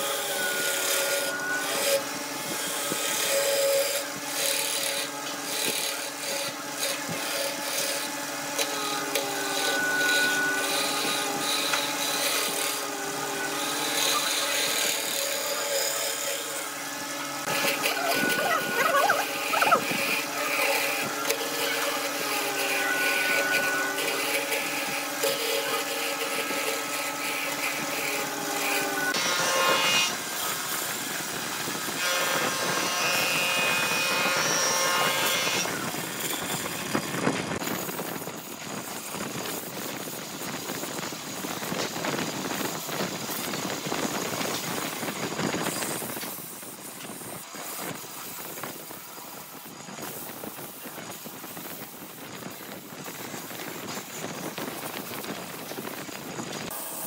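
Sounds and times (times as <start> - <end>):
wood lathe turning tool cutting: 0.0 - 38.6.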